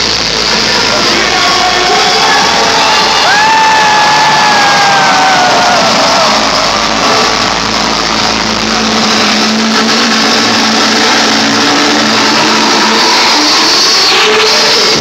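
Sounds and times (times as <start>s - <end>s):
falling synth sweep: 0.0s - 15.0s
loud electronic dance music: 0.0s - 15.0s
steady low synth note: 5.6s - 14.2s.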